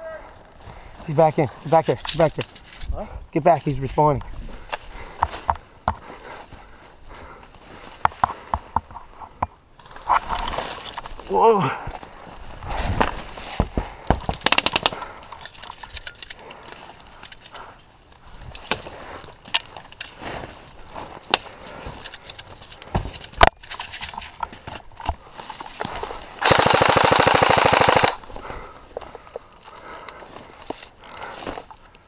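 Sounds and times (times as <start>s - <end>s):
airsoft guns firing: 26.4s - 28.2s.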